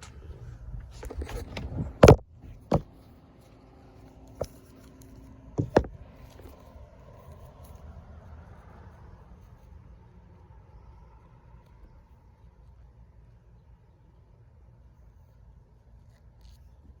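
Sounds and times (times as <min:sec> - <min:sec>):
handling rustling: 0:00.0 - 0:07.4
sharp knocks and clicks: 0:02.0 - 0:02.9, 0:05.6 - 0:06.6.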